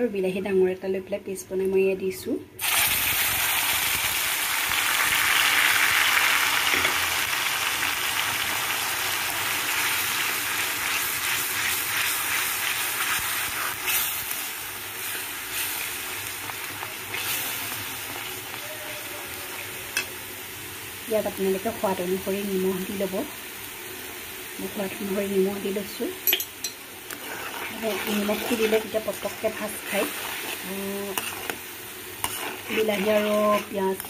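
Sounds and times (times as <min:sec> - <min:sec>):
paste sizzling in hot oil: 0:02.6 - 0:34.0
spatula stirring: 0:10.8 - 0:14.4, 0:27.1 - 0:34.0.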